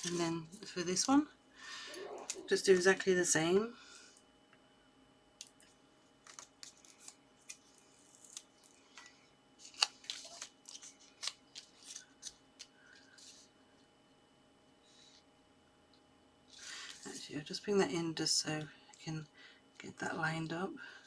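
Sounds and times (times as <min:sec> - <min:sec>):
paper card clicks and rustles: 0:06.2 - 0:13.4.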